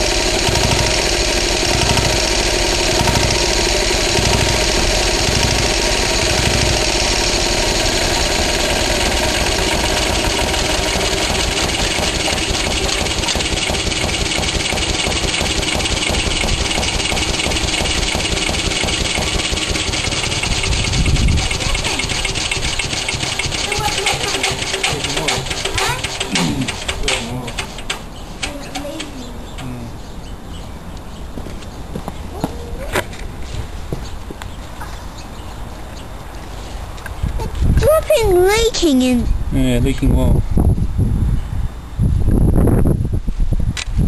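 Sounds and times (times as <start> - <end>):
diesel engine running: 0.0 - 29.8.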